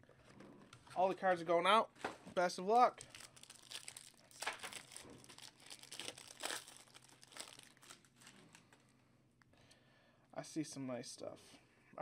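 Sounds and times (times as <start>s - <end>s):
packaging crinkling: 2.8s - 8.8s.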